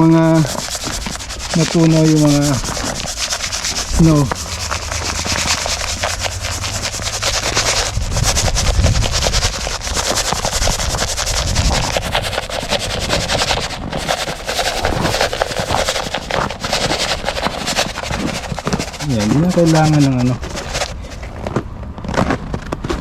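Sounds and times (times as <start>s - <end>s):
salt grains pattering on ice: 0.0s - 20.9s
low rumble: 0.4s - 15.2s.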